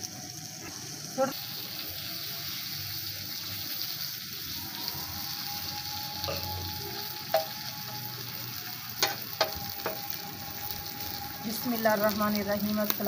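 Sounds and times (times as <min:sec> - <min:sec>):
onions sizzling in oil: 0:00.0 - 0:13.0
metal spatula clinking on pan: 0:07.3 - 0:07.6, 0:09.0 - 0:10.0.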